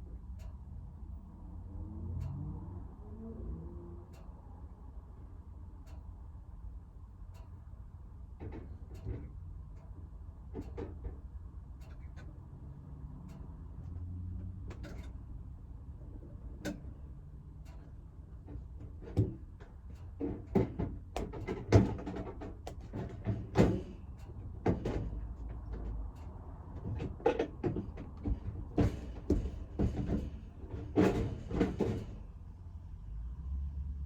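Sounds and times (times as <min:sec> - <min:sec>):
objects knocking and clunking: 0:18.4 - 0:32.3.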